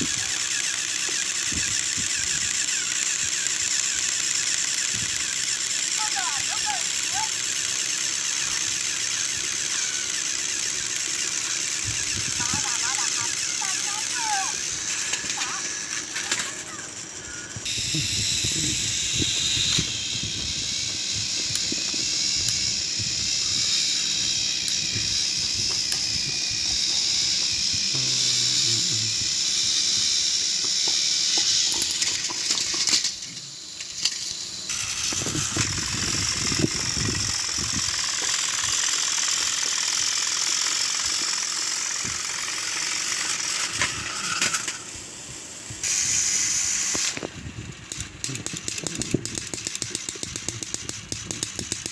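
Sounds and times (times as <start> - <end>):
toy train motors whirring: 0.0 - 51.9.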